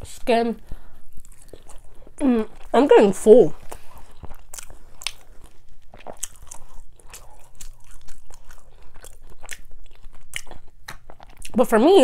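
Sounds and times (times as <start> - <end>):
person chewing food: 0.6 - 11.6.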